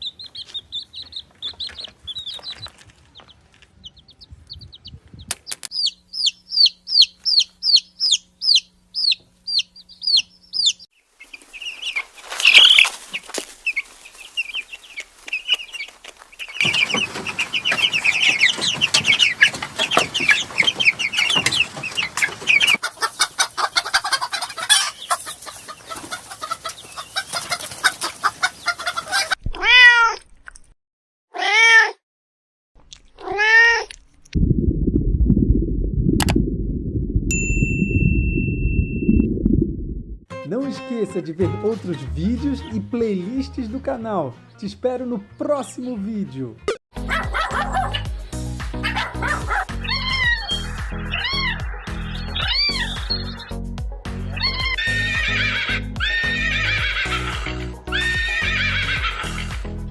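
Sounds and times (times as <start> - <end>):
bird chirping: 0.0 - 22.8, 49.8 - 53.5
chickens clucking: 0.0 - 29.4, 48.8 - 53.6
cat meowing: 29.5 - 30.2, 31.4 - 32.0, 33.2 - 34.0.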